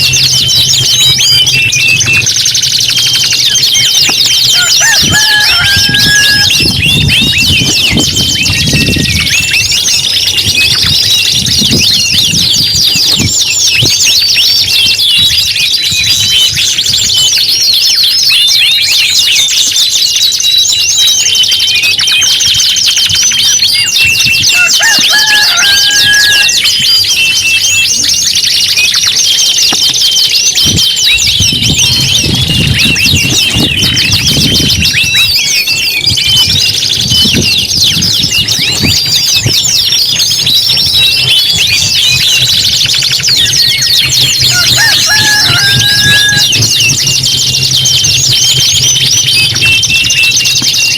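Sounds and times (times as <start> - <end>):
canaries singing trills: 0.0 - 50.9
low rumble: 43.2 - 50.2.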